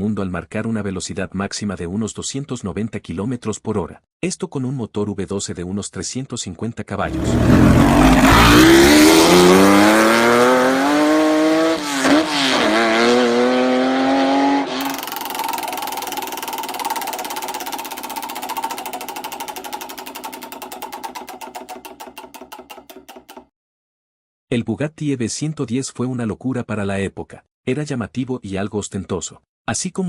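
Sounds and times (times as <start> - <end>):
steady pulsing engine note: 7.1 - 10.5, 14.8 - 21.8
sports car engine accelerating: 7.1 - 16.8.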